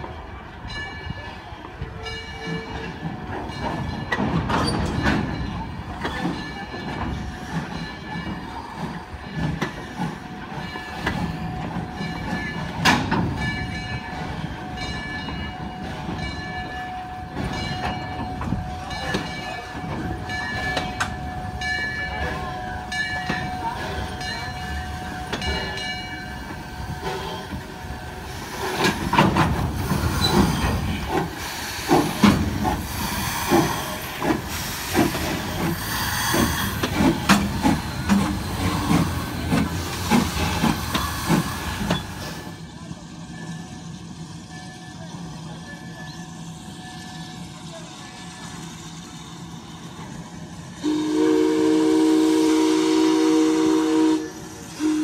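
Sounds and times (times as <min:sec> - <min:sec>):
steam locomotive hissing: 0:00.0 - 0:55.0
metallic wheel squeal: 0:29.8 - 0:31.8.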